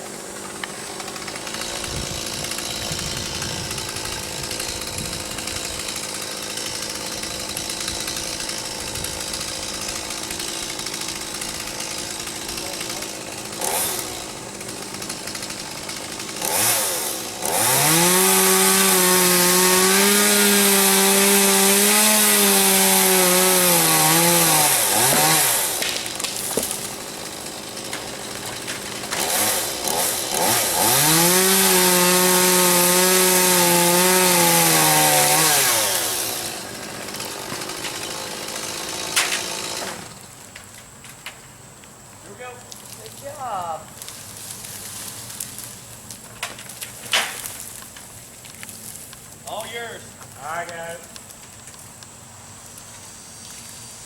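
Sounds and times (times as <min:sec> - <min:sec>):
chainsaw engine revving: 0:00.0 - 0:40.2
chainsaw idling: 0:00.0 - 0:40.4, 0:49.4 - 0:51.2.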